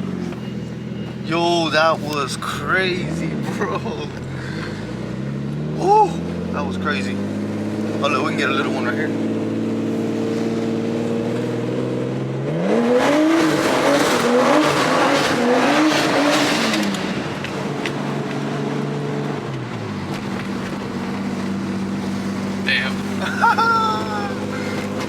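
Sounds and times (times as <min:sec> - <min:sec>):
car engine revving: 0:00.0 - 0:25.0
tyre noise on wet pavement: 0:14.0 - 0:25.0.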